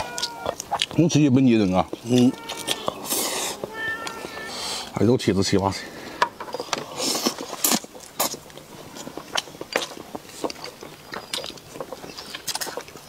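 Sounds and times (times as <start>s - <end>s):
close-up chewing clicks and smacks: 0.2s - 1.0s, 6.7s - 13.0s.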